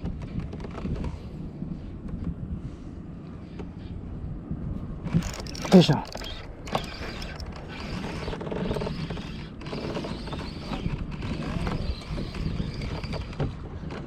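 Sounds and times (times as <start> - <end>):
fishing reel whirring and creaking: 5.0 - 14.0.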